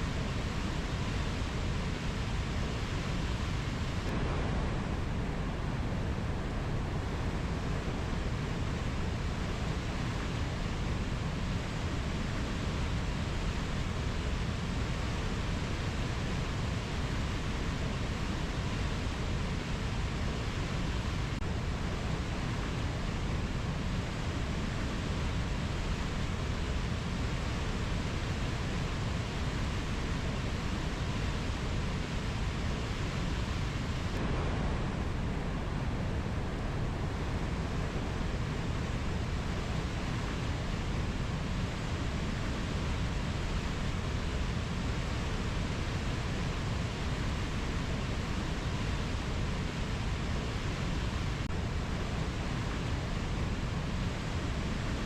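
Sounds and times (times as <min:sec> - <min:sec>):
steady low rushing noise: 0:03.5 - 0:09.0, 0:31.5 - 0:45.3.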